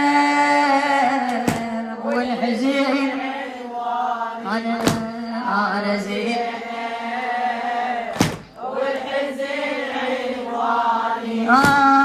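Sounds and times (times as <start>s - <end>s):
woman chanting: 0.0s - 12.0s
sharp thumps: 8.2s - 8.6s.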